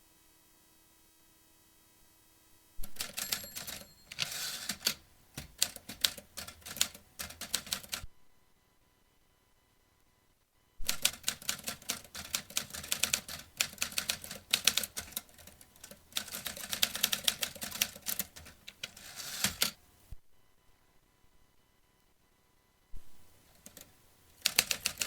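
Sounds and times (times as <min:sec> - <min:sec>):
typewriter key strikes: 0:02.9 - 0:08.0, 0:10.9 - 0:19.8.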